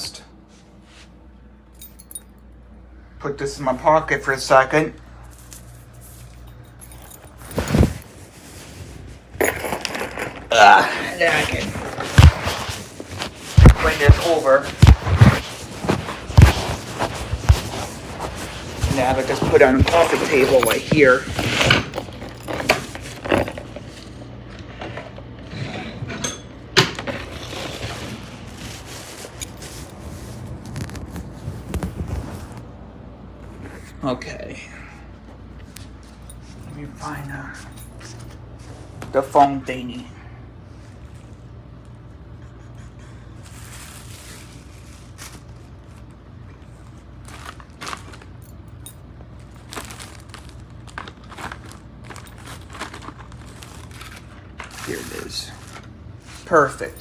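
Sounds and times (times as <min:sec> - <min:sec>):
low steady hum: 0:00.0 - 0:57.0
rustling and scraping objects: 0:00.3 - 0:02.3, 0:05.0 - 0:34.0, 0:35.2 - 0:40.0, 0:40.6 - 0:57.0.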